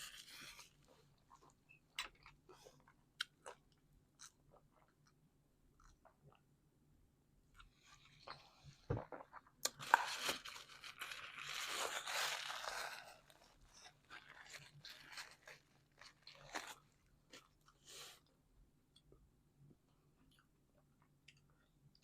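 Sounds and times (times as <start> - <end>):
crunchy chewing and mouth sounds: 9.0 - 17.8.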